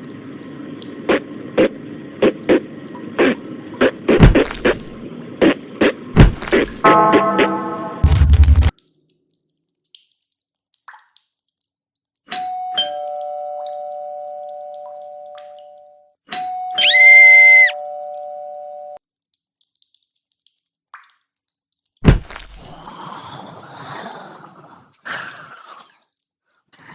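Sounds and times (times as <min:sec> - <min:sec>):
sharp knock: 0:04.2 - 0:05.0, 0:06.2 - 0:06.8, 0:22.0 - 0:22.5
doorbell chime ding-dong: 0:12.4 - 0:15.4, 0:17.8 - 0:19.0.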